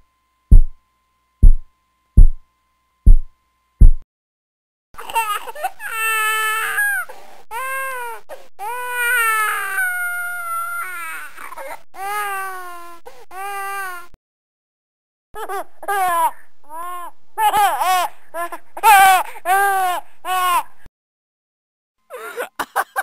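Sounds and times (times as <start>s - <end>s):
heartbeat thuds: 0.5s - 0.8s, 1.4s - 2.4s, 3.0s - 4.0s
baby crying: 5.0s - 14.2s, 15.4s - 20.7s.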